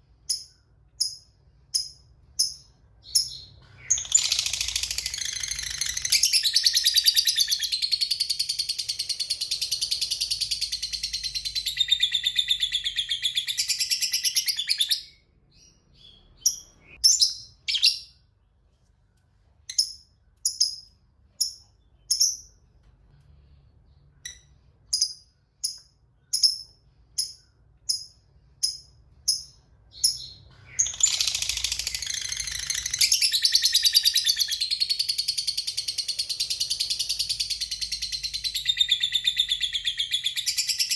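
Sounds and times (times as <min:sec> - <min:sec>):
lovebird sharp chirps: 0:00.2 - 0:18.2, 0:19.7 - 0:22.6, 0:24.2 - 0:40.9
lovebird high-pitched chatter: 0:00.3 - 0:15.1, 0:19.7 - 0:22.6, 0:24.2 - 0:40.9.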